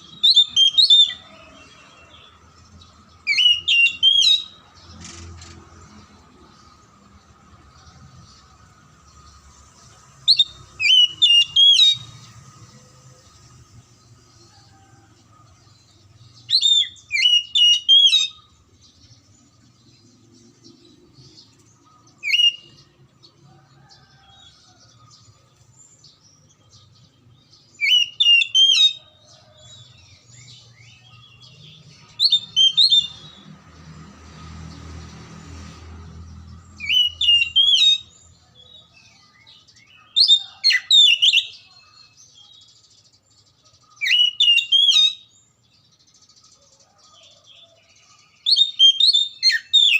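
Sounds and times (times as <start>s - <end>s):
bird singing whistled notes: 0.0s - 2.3s, 3.1s - 4.7s, 10.2s - 12.5s, 16.0s - 19.5s, 20.2s - 22.9s, 26.1s - 29.6s, 30.2s - 33.5s, 36.8s - 42.8s, 43.9s - 45.5s, 48.2s - 49.9s.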